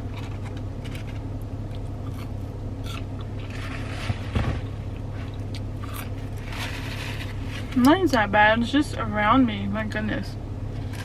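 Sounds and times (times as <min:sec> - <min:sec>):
low hum: 0:00.0 - 0:11.0
chewing and eating: 0:00.1 - 0:07.8
scraping rustle: 0:03.4 - 0:08.0.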